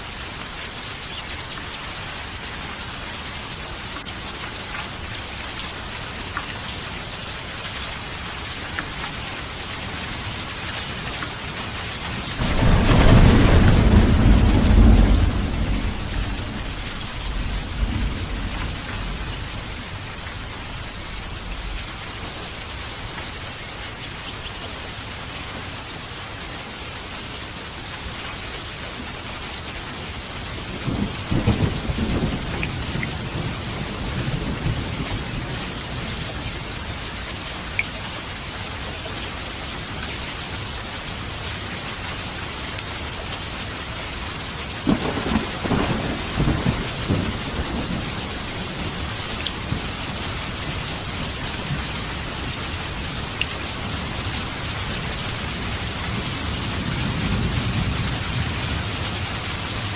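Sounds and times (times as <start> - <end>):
steady rain: 0.0 - 59.9
rolling thunder: 12.4 - 20.1, 30.7 - 36.2, 44.8 - 53.0, 55.4 - 59.9.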